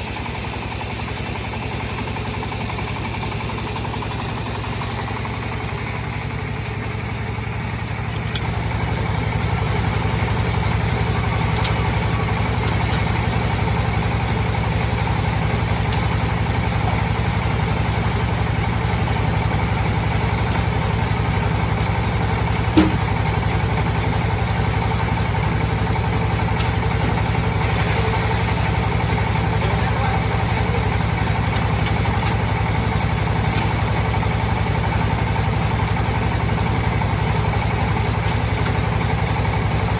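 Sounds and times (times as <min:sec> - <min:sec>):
sharp knock: 0:22.8 - 0:23.1.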